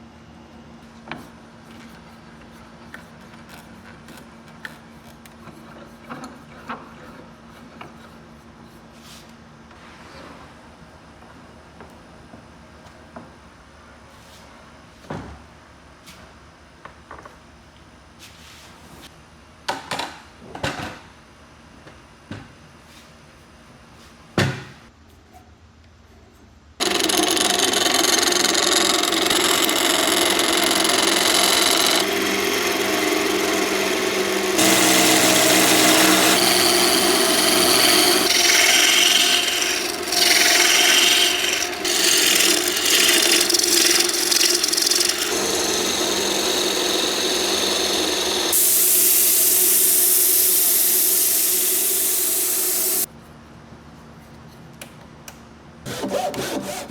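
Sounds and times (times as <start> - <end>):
power tool grinding wood: 26.8 - 53.1.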